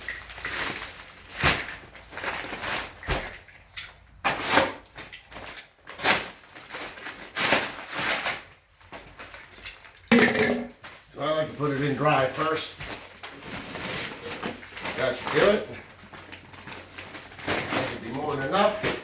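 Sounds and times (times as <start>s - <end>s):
gritty scraping of dry mix: 11.2s - 19.0s.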